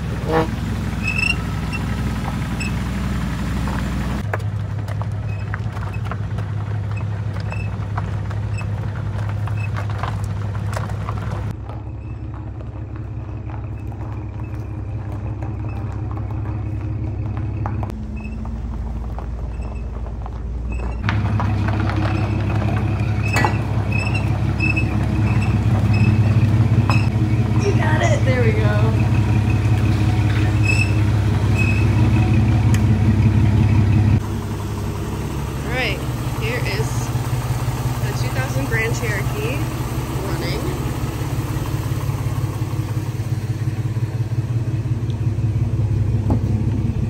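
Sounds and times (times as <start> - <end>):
engine running at low speed: 0.0 - 47.0
tyres crunching over gravel: 0.0 - 47.0.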